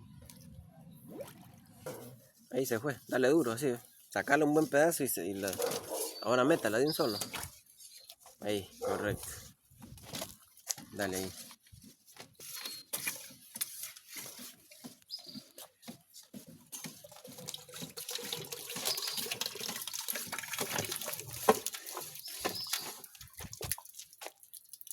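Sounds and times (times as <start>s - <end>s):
knocks and scrapes: 1.8s - 3.6s, 4.2s - 23.8s
water gurgling in drain pipe: 17.0s - 24.9s.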